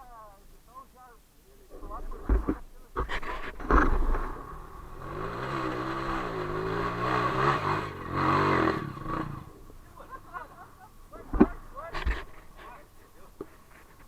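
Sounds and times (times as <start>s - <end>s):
motorcycle engine revving: 3.2s - 12.7s.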